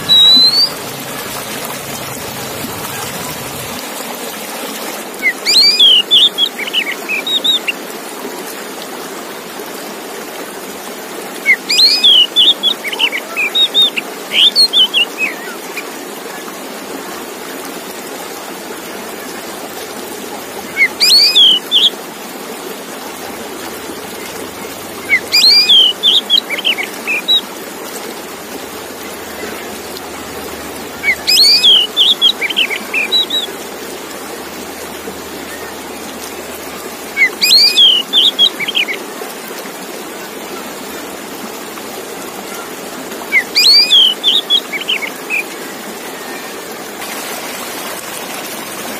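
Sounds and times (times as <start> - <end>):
bird singing whistled phrases: 0.0 - 0.8, 5.2 - 7.7, 11.4 - 15.6, 20.7 - 21.9, 25.0 - 27.4, 31.0 - 33.6, 37.2 - 39.0, 43.3 - 45.4.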